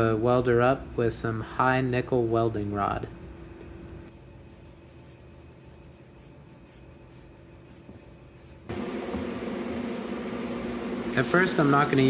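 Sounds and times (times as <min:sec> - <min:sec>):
faint rubbing strokes: 0:04.1 - 0:08.7
welding arc buzzing hiss: 0:08.7 - 0:12.0.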